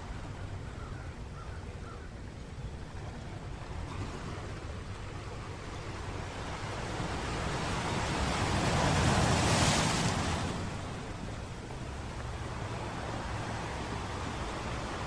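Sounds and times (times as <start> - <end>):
sea waves washing onto beach: 5.9 - 15.0.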